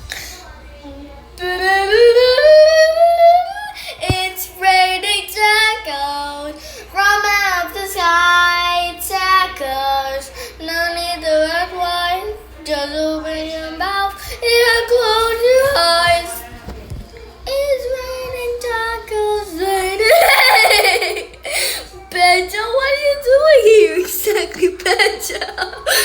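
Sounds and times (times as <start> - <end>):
child singing: 0.5 - 16.6, 17.4 - 21.2, 21.9 - 26.0.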